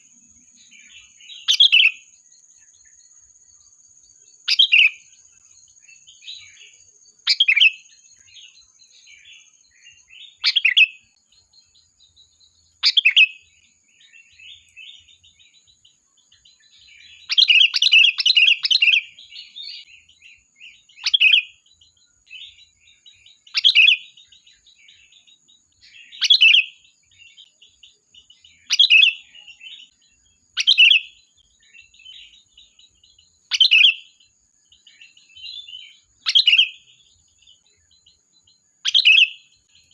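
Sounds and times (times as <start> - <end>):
bird calling: 0.6 - 2.1, 5.8 - 11.2, 12.8 - 21.6, 22.2 - 34.2, 34.8 - 37.9, 38.8 - 39.9.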